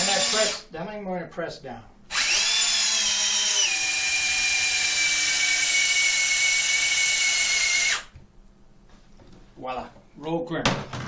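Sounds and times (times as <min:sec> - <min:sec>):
drill-driver whining: 0:00.0 - 0:00.6, 0:02.1 - 0:08.1.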